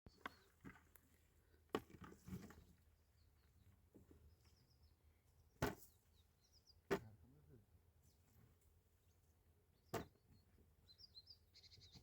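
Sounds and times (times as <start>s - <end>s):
faint bird chirps: 9.8s - 12.0s.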